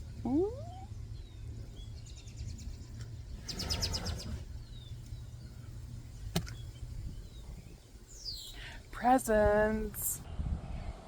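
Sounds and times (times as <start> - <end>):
faint bird chirps: 0.0 - 5.8, 6.4 - 9.0
low steady hum: 0.0 - 10.6.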